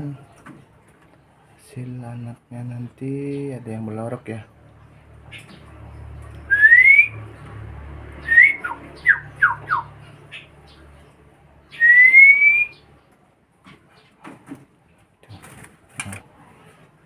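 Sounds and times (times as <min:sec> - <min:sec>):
bird whistling: 0:06.5 - 0:07.2, 0:08.2 - 0:10.5, 0:11.7 - 0:12.8.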